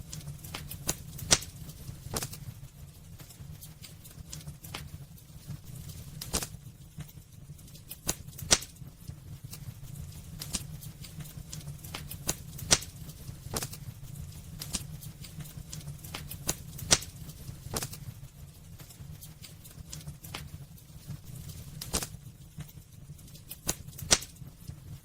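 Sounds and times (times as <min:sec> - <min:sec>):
fire low rumble: 0:00.0 - 0:25.0
wood fire crackling and popping: 0:00.0 - 0:25.0.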